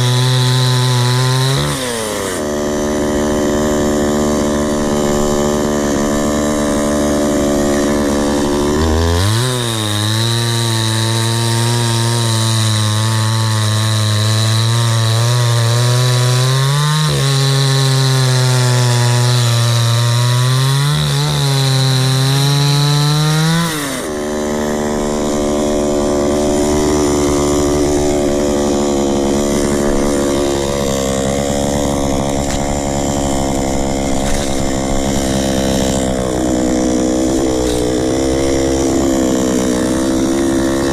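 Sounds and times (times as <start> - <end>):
chainsaw cutting through log: 0.0 - 40.9.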